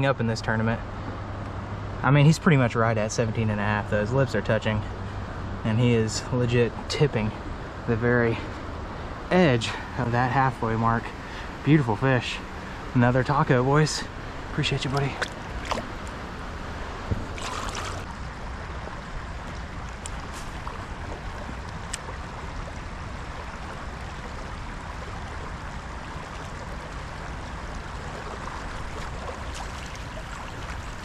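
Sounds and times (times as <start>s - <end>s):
river water rushing: 6.8s - 31.0s.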